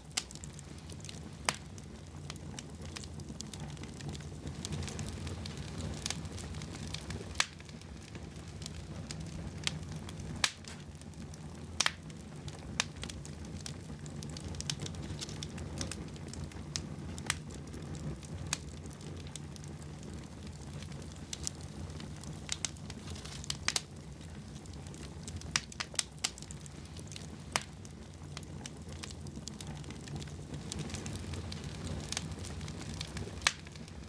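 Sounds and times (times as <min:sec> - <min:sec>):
wood fire crackling and popping: 0:00.0 - 0:34.0.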